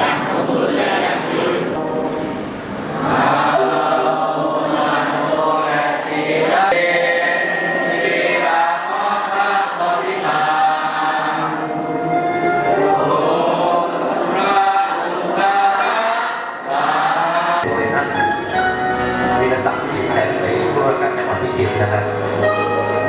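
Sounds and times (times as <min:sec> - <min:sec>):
choir singing in unison: 0:00.0 - 0:17.8.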